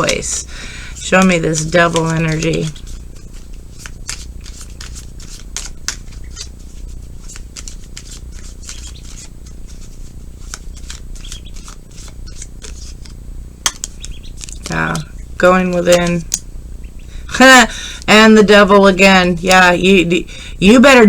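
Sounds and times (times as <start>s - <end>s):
cards being shuffled: 0.0s - 16.4s
steady low hum: 0.0s - 21.0s.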